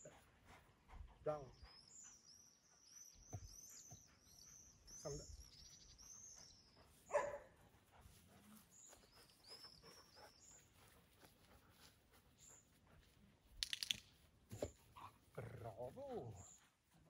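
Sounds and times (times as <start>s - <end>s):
faint bird chirps: 1.5s - 7.5s
dog barking: 7.1s - 7.6s.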